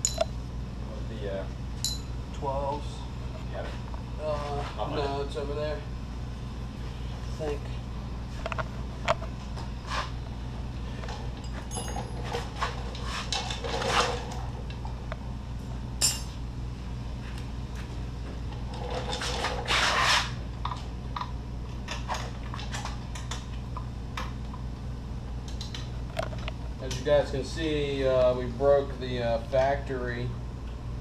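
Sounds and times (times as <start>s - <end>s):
metal tools clinking: 0.0s - 0.3s, 1.8s - 2.2s, 11.4s - 12.4s, 16.0s - 16.4s
steady low hum: 0.0s - 31.0s.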